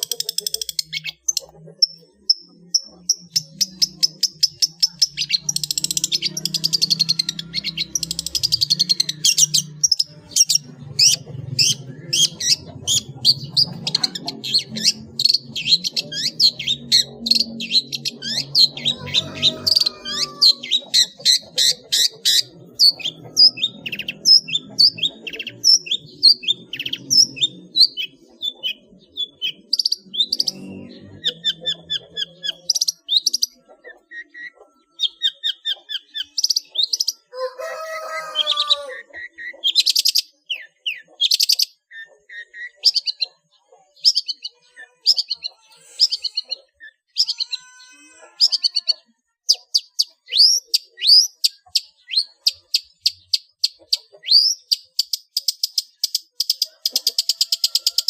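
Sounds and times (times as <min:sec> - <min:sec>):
bird singing chirps and trills: 0:00.0 - 0:58.0.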